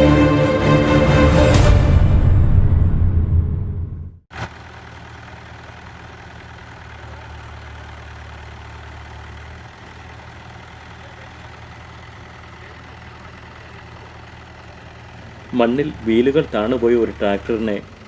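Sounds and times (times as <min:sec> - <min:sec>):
tractor diesel engine running: 0:04.3 - 0:18.0.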